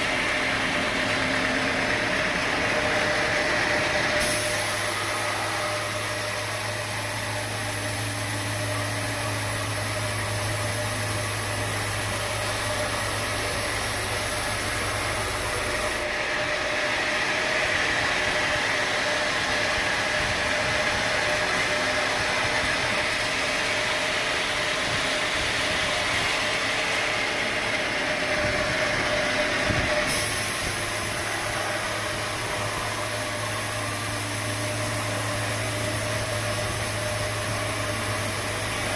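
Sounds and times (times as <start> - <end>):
sawmill machinery humming: 0.0 - 38.9
bright hiss: 4.1 - 16.0, 30.0 - 38.9.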